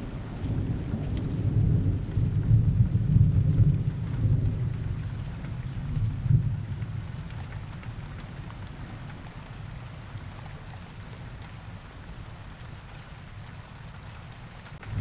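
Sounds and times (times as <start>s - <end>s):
rolling thunder: 0.0s - 4.9s, 14.8s - 15.0s
steady rain: 0.0s - 15.0s.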